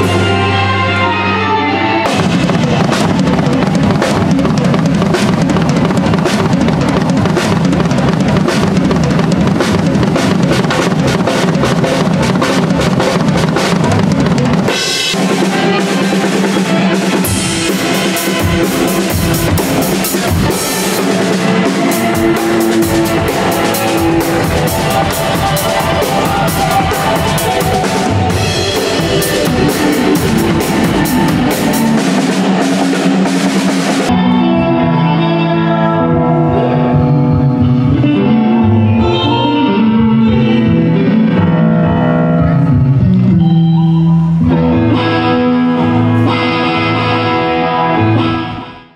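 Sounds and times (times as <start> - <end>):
held instrument notes: 0.0 - 48.2
drum kit: 0.0 - 48.8
rock band warming up: 0.0 - 48.9.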